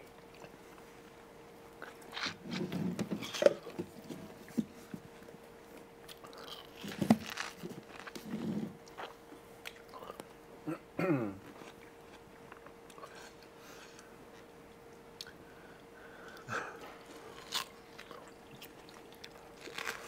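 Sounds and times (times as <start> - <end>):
crackly bites and chewing: 6.0 - 10.3, 17.1 - 20.0.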